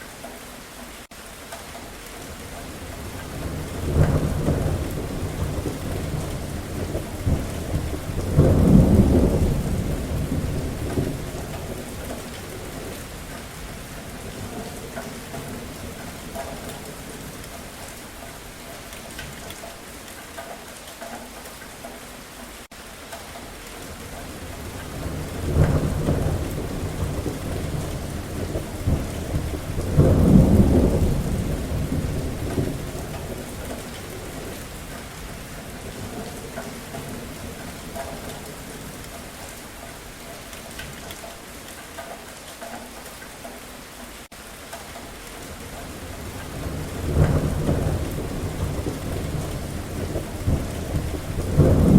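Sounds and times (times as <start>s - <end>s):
steady rain falling: 0.0s - 51.9s
thunder rolling: 2.8s - 17.5s, 23.9s - 39.1s, 45.8s - 51.9s.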